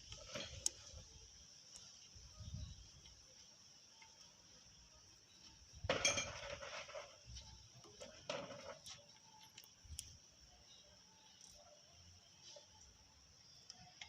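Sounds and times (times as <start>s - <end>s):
metal tools clanking: 5.9s - 7.1s.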